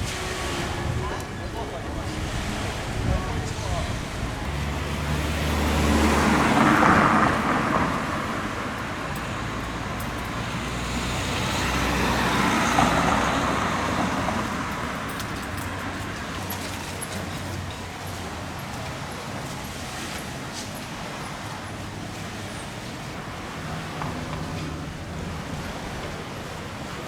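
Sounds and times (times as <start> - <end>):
vehicles driving past: 0.0 - 27.0.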